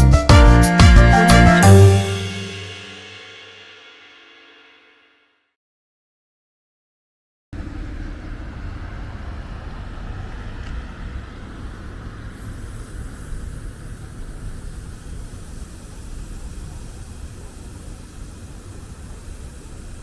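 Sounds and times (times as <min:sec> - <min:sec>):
passing cars rumbling: 0:07.6 - 0:15.3.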